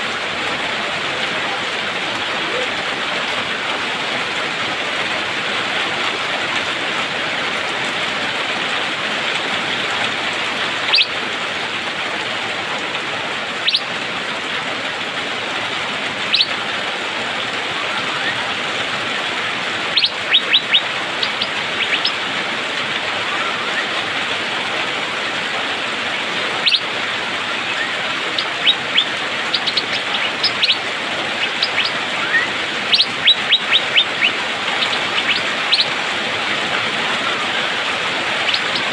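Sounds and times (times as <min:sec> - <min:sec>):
rain hissing: 0:00.0 - 0:38.9
bird calling sharp upswept notes: 0:10.8 - 0:11.2, 0:13.6 - 0:14.0, 0:16.2 - 0:16.7, 0:19.8 - 0:22.3, 0:23.0 - 0:24.2, 0:26.5 - 0:38.9.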